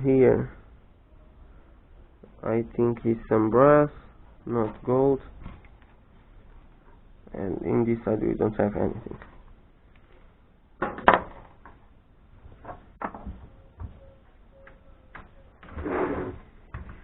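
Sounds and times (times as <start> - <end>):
short scraping: 15.6 - 16.6.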